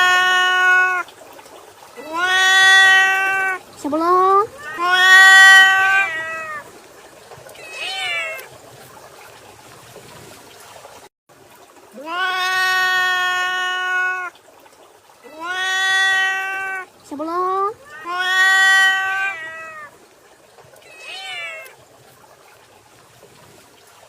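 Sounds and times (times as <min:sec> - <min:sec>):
long drawn-out animal cries: 0:00.0 - 0:01.1, 0:02.0 - 0:03.7, 0:04.4 - 0:06.7, 0:07.5 - 0:08.5, 0:11.9 - 0:14.4, 0:15.2 - 0:16.9, 0:17.6 - 0:20.0, 0:20.8 - 0:21.8.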